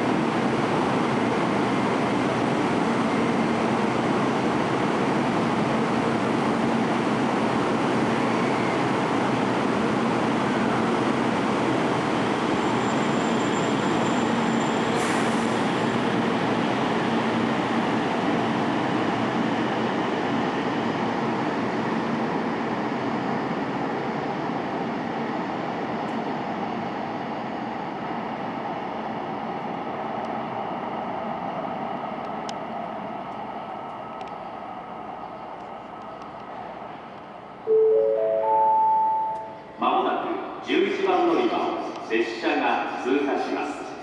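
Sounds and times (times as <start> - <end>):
brief click: 39.3 - 39.6.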